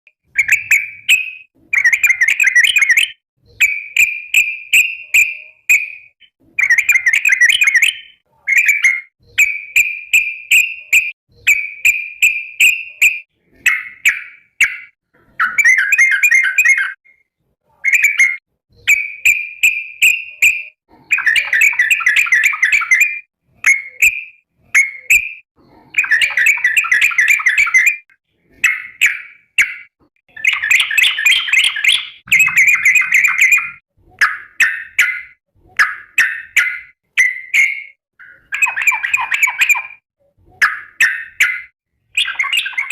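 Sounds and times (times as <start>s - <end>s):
bird singing bubbling phrases: 0.2s - 42.9s.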